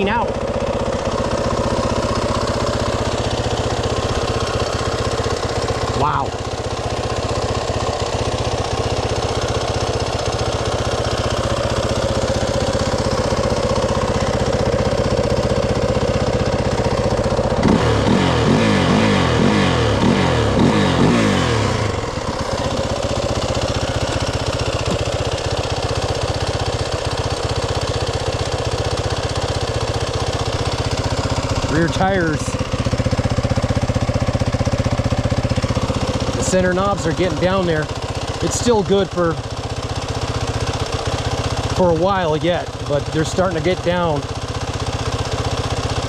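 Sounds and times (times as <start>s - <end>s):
dirt bike engine idling: 0.0s - 46.0s.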